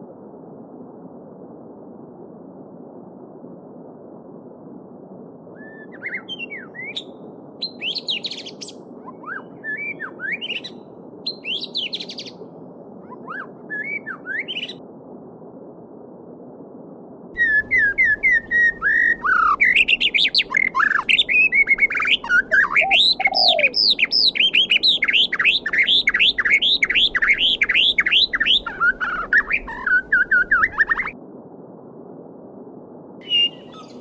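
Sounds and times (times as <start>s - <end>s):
songbird singing: 5.6s - 12.4s, 13.0s - 14.8s, 17.4s - 31.2s, 33.2s - 34.0s.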